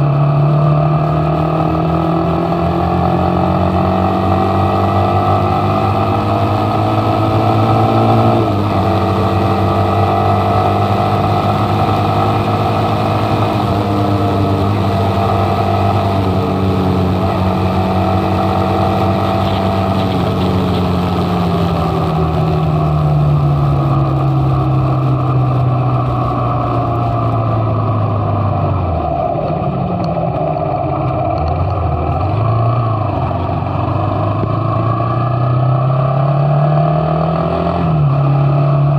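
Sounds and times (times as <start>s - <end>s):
motorcycle engine running: 0.0s - 36.5s.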